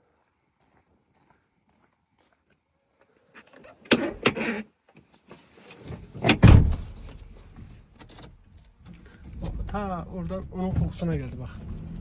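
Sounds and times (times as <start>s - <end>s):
car door clunks and rattling: 3.9s - 4.4s, 5.8s - 8.4s
car door shutting thud: 6.2s - 7.4s.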